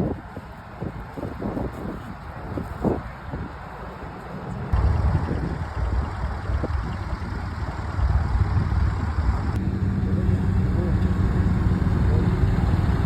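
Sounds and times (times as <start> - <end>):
wind buffeting microphone: 0.0 - 13.0
engine running: 3.8 - 13.0.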